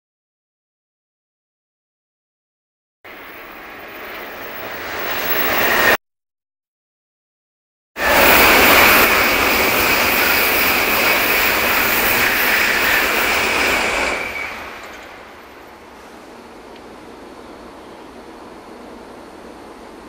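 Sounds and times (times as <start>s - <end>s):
high-speed train rushing past: 3.1s - 6.0s, 8.0s - 20.0s.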